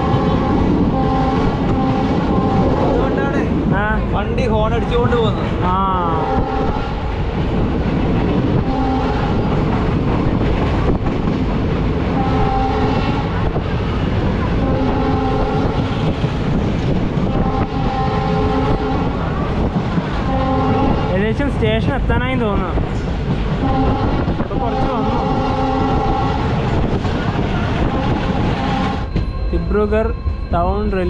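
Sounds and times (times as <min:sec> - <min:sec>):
train horn blasts: 0:00.0 - 0:03.3, 0:06.1 - 0:07.0, 0:08.6 - 0:09.5, 0:12.1 - 0:13.4, 0:14.6 - 0:16.1, 0:17.3 - 0:19.2, 0:20.2 - 0:21.1, 0:23.6 - 0:26.5, 0:27.8 - 0:29.1
train wheels rumbling on track: 0:00.0 - 0:31.0.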